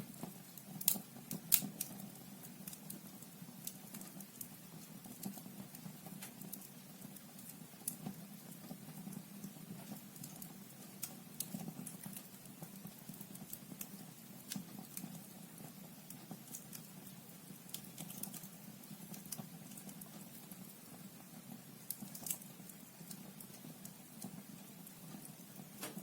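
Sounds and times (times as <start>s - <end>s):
fire crackling and popping: 0.0s - 26.0s.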